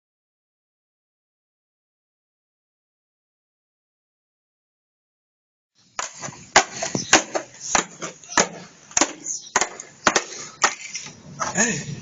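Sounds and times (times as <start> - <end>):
sharp knocks: 6.0 - 10.8.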